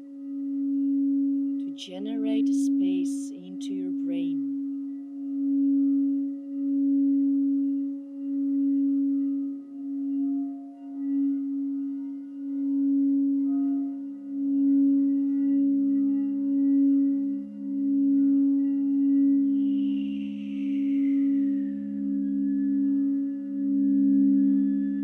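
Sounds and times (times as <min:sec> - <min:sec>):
lower singing bowl tone: 0:00.0 - 0:25.0
singing bowl tone: 0:00.0 - 0:25.0.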